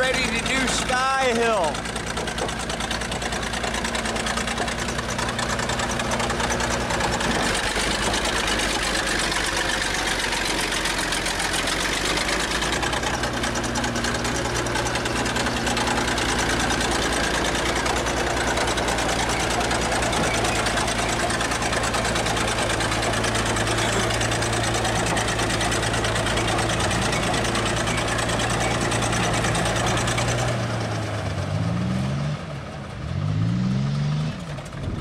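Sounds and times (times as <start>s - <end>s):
bulldozer engine clattering: 0.0s - 31.7s, 32.4s - 35.0s.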